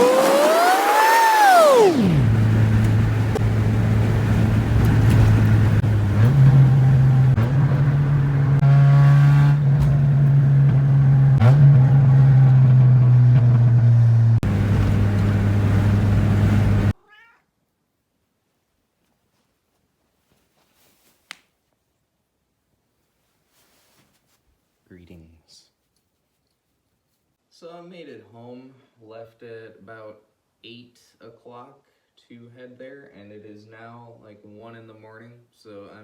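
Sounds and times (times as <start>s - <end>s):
car exhaust droning: 0.0s - 17.0s.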